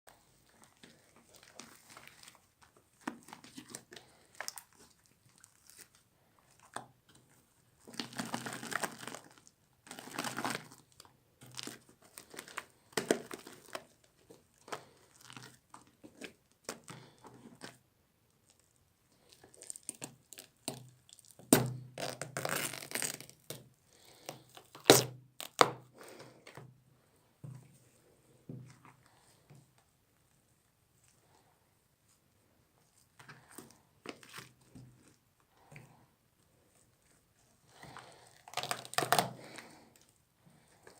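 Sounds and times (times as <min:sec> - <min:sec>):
slime crackling and popping: 0:19.4 - 0:23.6, 0:38.4 - 0:39.5.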